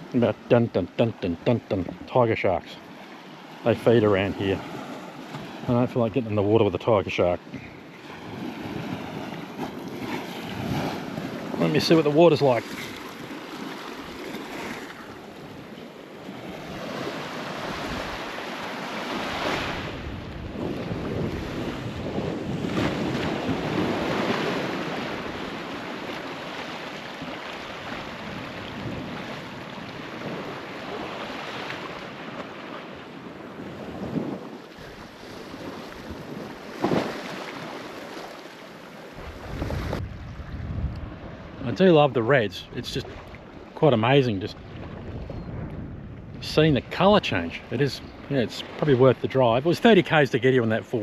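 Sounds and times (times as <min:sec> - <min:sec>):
ocean waves breaking: 0:00.0 - 0:51.0
wind buffeting microphone: 0:16.4 - 0:18.4, 0:19.5 - 0:26.2, 0:27.2 - 0:31.3, 0:39.2 - 0:41.8, 0:44.5 - 0:48.8.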